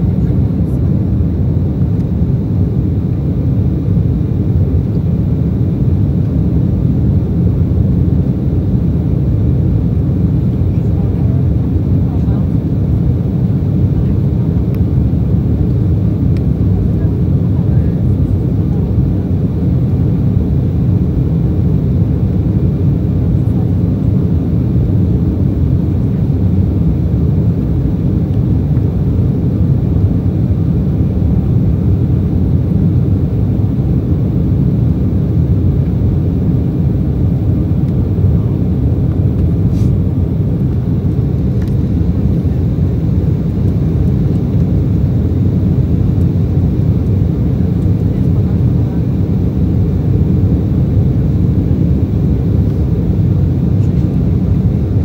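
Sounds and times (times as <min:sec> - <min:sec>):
jet engine cabin rumble: 0:00.0 - 0:55.0.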